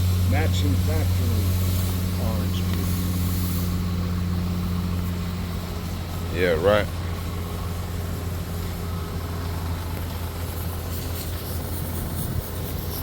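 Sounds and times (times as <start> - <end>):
machinery droning hum: 0.0 - 13.0.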